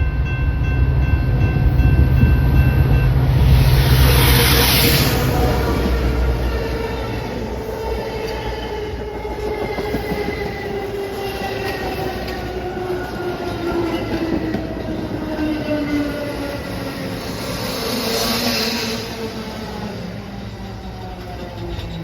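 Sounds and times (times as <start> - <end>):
train running past: 0.0 - 22.0
falling whine: 2.8 - 8.2.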